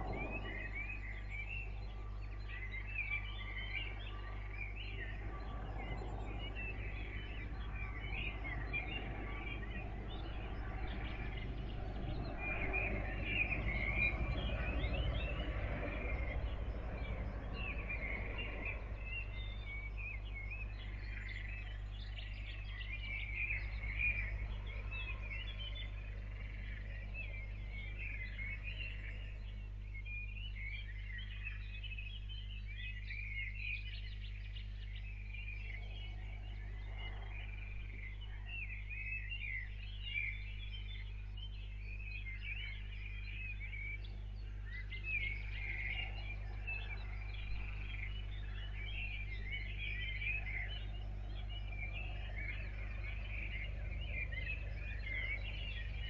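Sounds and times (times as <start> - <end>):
low rumble: 0.0 - 2.4
birds chirping and singing: 0.0 - 56.0
low hum: 0.0 - 56.0.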